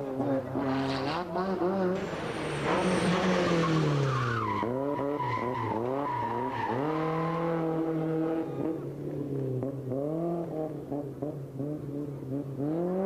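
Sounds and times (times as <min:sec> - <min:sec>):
rally car engine revving: 0:00.0 - 0:13.0
tyre skidding: 0:02.0 - 0:08.2.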